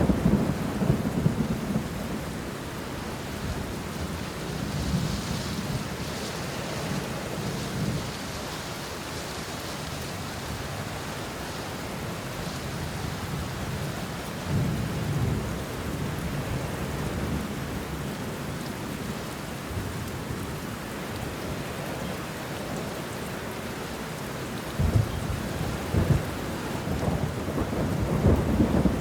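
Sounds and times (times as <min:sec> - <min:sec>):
low thunder rumble: 0:00.0 - 0:05.9, 0:24.8 - 0:29.0
rain falling on leaves: 0:00.0 - 0:29.0
thunder clap: 0:24.8 - 0:29.0.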